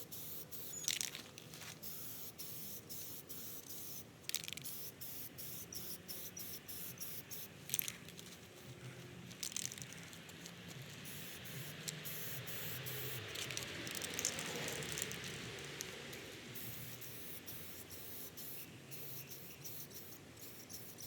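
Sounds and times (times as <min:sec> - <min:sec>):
aerosol can spraying: 0:11.0 - 0:15.4, 0:16.6 - 0:21.0.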